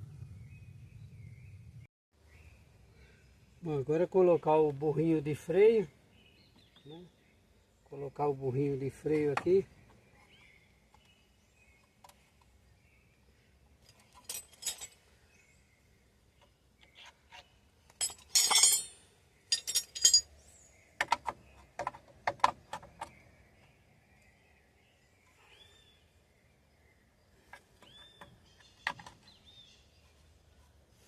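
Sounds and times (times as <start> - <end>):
small metal parts clinking: 13.8 - 15.0, 17.9 - 20.3.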